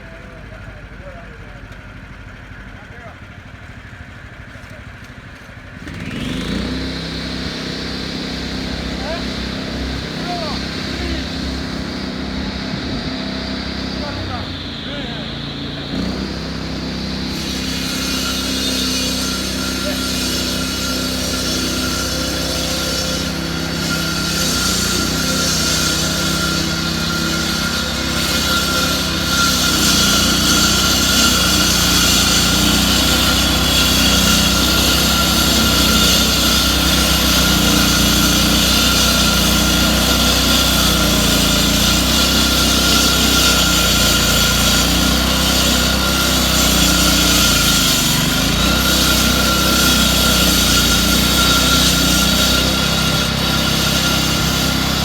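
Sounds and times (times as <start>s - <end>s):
machinery engine running: 0.3s - 55.0s
high whine: 7.0s - 18.5s.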